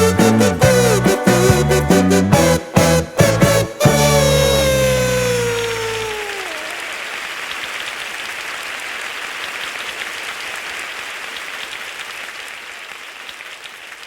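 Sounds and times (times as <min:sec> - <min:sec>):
music track: 0:00.0 - 0:06.7
audience applause: 0:04.1 - 0:14.0.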